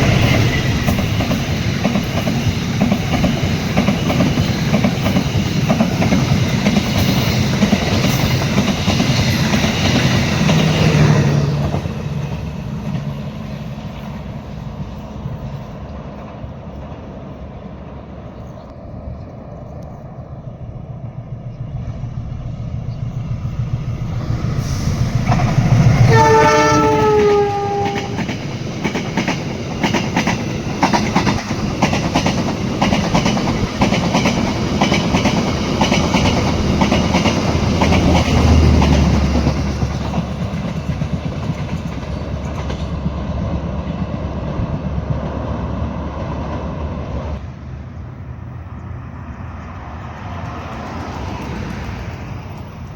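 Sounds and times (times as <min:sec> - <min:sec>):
train rumbling past: 0:00.0 - 0:52.9
train horn: 0:25.7 - 0:28.4.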